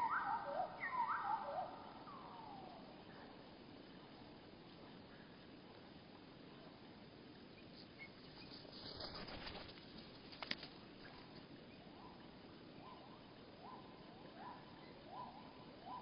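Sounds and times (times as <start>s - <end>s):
slowed bird calls: 0.0s - 3.4s
rustle: 0.0s - 16.0s.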